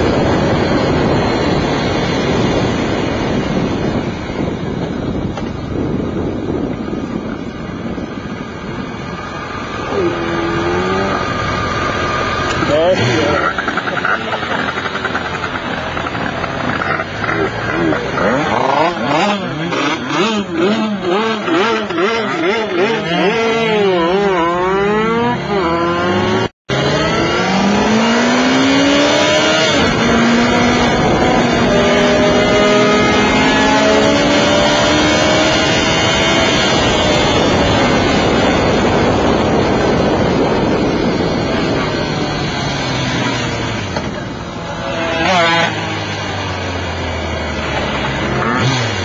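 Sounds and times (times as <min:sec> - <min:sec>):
wind rush: 0:00.0 - 0:25.4, 0:26.0 - 0:49.0
motorcycle engine revving: 0:00.0 - 0:49.0.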